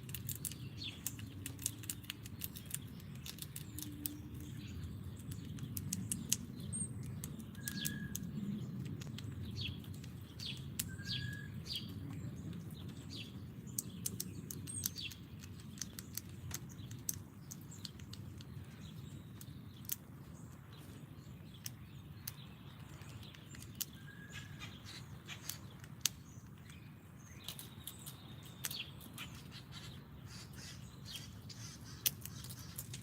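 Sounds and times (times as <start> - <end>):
sharp clicks and taps: 0.0 - 11.0, 13.7 - 20.6, 25.3 - 26.8
songbirds chirping: 0.0 - 33.0.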